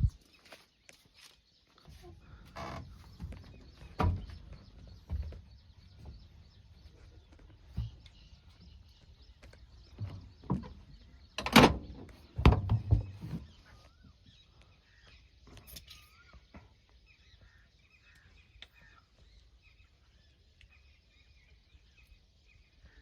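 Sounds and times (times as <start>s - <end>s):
birds chirping: 0.0s - 23.0s
heavy thuds and knocks: 3.0s - 6.8s, 11.6s - 13.6s.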